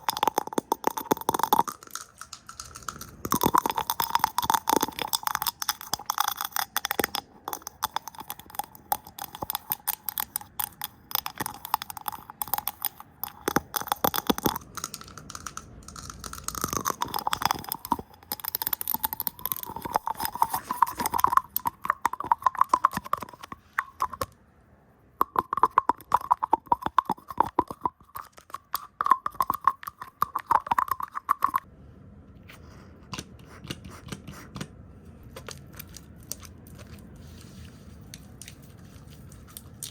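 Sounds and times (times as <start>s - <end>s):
rapid clicks: 0.0s - 24.3s.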